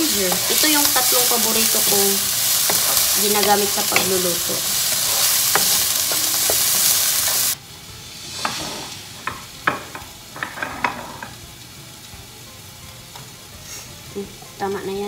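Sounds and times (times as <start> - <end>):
food sizzling in a frying pan: 0.0 - 15.0
wooden spatula stirring: 0.1 - 7.6.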